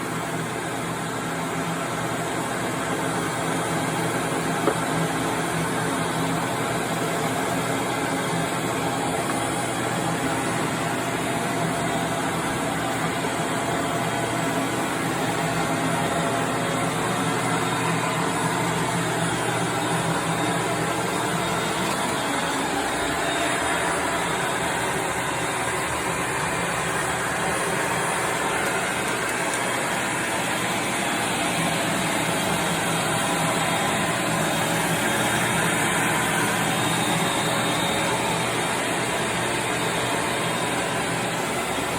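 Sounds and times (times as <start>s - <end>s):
band saw running: 2.0s - 41.9s.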